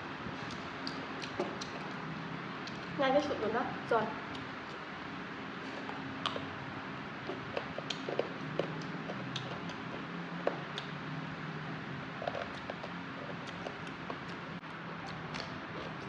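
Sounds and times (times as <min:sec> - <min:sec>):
low background hum and hiss: 0:00.0 - 0:16.0
wet chewing sounds: 0:00.3 - 0:03.0, 0:04.2 - 0:16.0.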